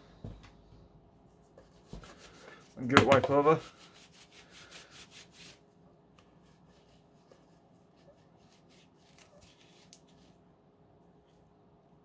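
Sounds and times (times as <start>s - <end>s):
faint clicks and rustles of parts: 6.1s - 10.5s.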